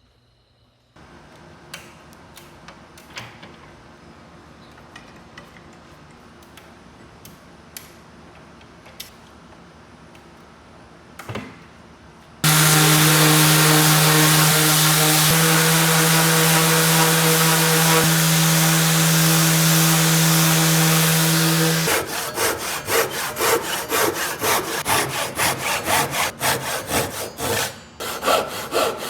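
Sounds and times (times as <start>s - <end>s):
power tool motor running: 12.4s - 26.3s.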